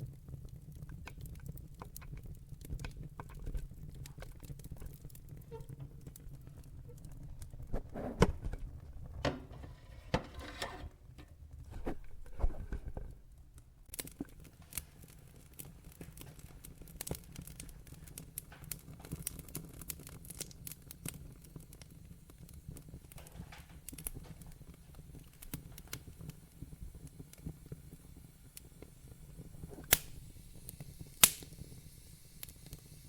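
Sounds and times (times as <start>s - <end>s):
fire crackling: 0.0s - 33.0s
loud pops from fire: 13.8s - 33.0s.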